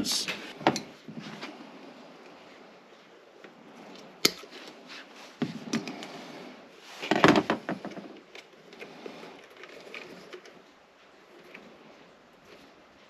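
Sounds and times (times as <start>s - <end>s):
objects knocking and clicking: 7.0s - 8.5s
objects clattering: 7.0s - 10.7s.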